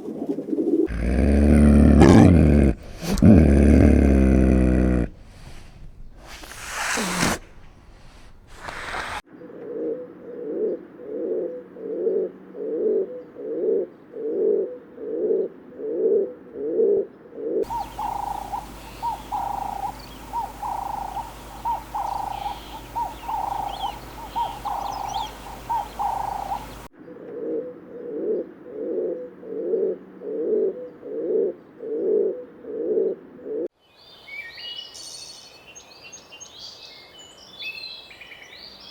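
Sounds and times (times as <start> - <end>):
faint chirps: 0.9 - 9.2, 17.6 - 26.9
higher repeated bird call: 0.9 - 9.2, 17.6 - 26.9
low cooing bird call: 0.9 - 9.2, 17.6 - 33.6.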